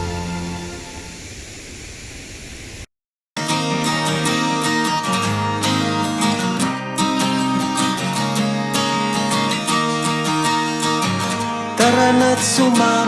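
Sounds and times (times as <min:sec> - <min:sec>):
acoustic guitar strumming chords: 0:03.4 - 0:13.0.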